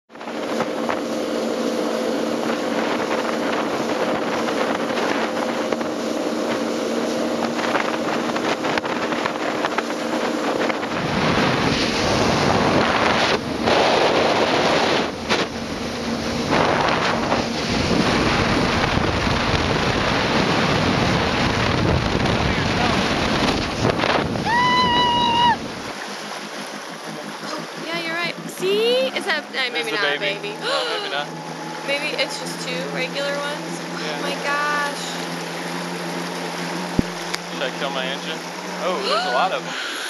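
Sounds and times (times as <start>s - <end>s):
wind on microphone: 0.1s - 26.0s
jet ski engine humming: 0.1s - 40.0s
rushing water: 0.1s - 40.0s.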